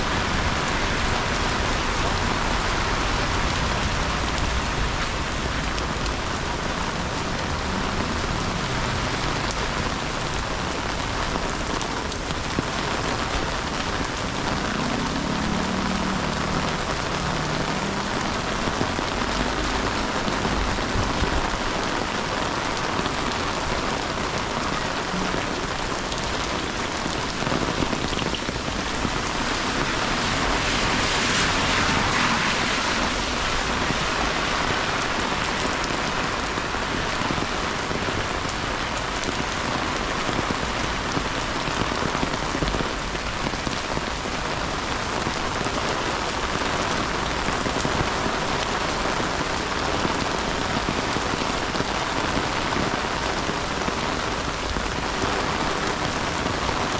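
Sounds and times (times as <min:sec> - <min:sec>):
heavy rain on hard surfaces: 0:00.0 - 0:56.9.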